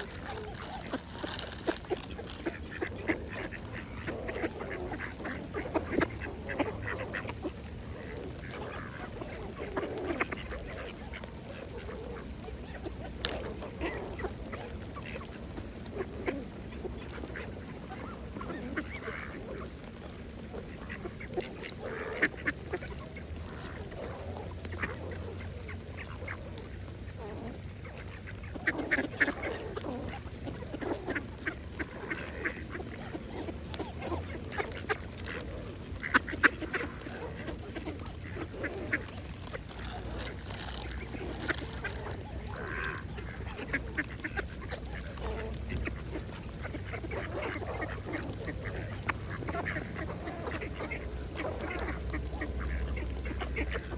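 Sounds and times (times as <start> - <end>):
ducks quacking: 0.0 - 53.9
duck bills clicking: 28.0 - 53.9.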